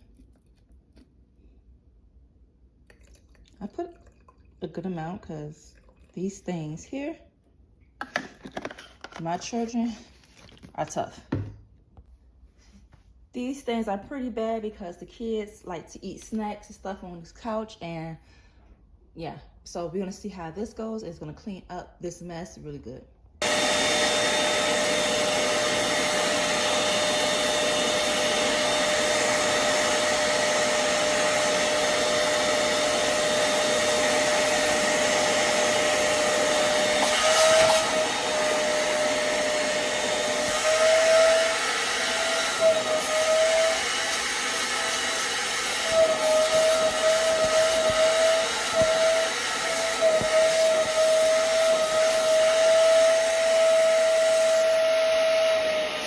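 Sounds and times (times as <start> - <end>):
spot cleaner suction motor whine: 23.4 - 56.0.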